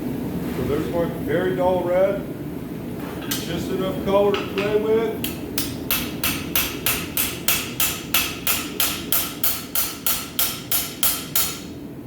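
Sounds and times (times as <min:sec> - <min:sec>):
hammer striking steel on anvil: 0:04.4 - 0:11.7.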